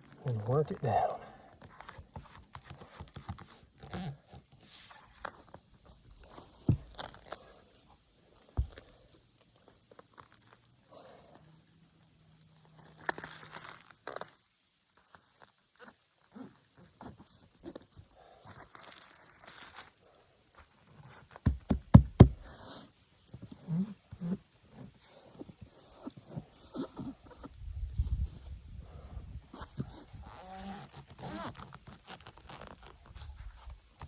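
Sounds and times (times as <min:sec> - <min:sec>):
knocks on roofing: 0:21.4 - 0:22.5.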